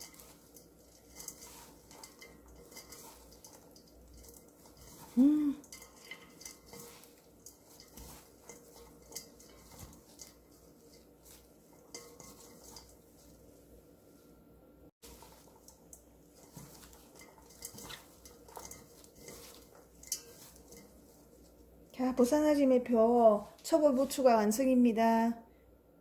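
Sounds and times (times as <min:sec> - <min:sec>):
light clinks against bowl: 0:00.0 - 0:13.5, 0:15.1 - 0:21.7
food rustling in a bowl: 0:00.0 - 0:25.1.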